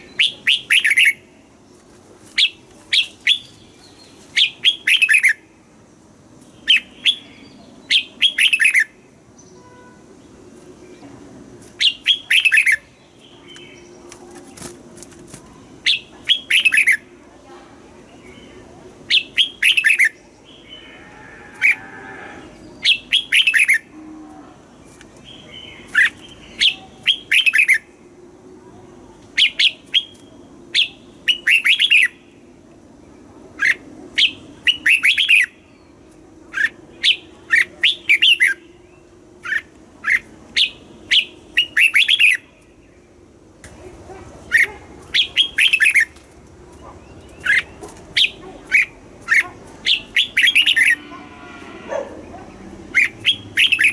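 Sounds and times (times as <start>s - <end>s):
bird chirping song: 0.0s - 1.8s, 2.4s - 5.6s, 6.4s - 14.7s, 18.0s - 23.9s, 33.6s - 43.2s, 44.1s - 53.9s.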